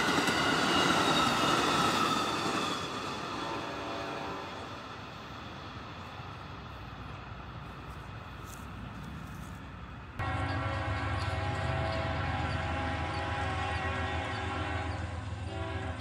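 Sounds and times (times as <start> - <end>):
freight train rumbling: 0.0 - 16.0
diesel locomotive horn: 3.3 - 4.8, 10.2 - 16.0.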